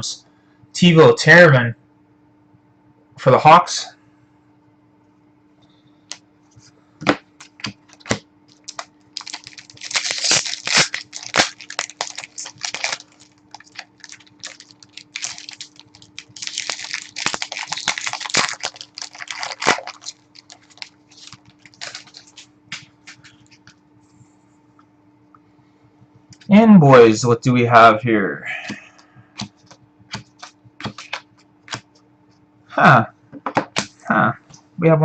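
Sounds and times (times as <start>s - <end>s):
cards flicked and shuffled: 7.0s - 11.6s, 20.6s - 23.7s, 29.4s - 31.9s, 33.5s - 34.0s
card pack wrappers tearing: 7.4s - 23.4s, 30.1s - 31.8s
wrappers crinkling: 7.4s - 23.6s.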